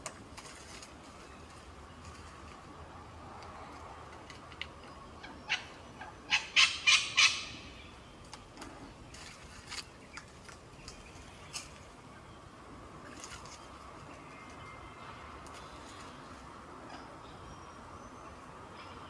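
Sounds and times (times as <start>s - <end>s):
bird harsh calls: 5.2s - 8.0s.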